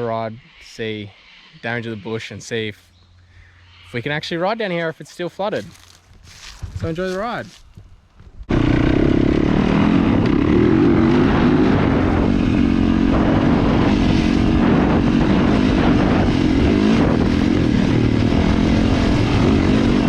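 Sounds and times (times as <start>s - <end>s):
dirt bike engine revving: 8.5s - 20.0s.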